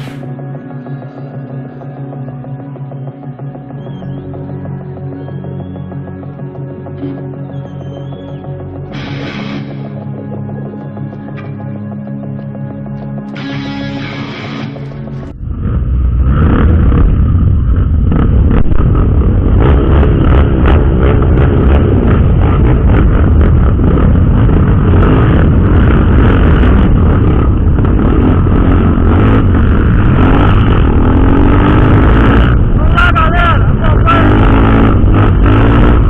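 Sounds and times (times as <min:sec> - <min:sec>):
motorcycle engine running: 0:00.0 - 0:36.0
wind rumble on microphone: 0:15.3 - 0:32.8.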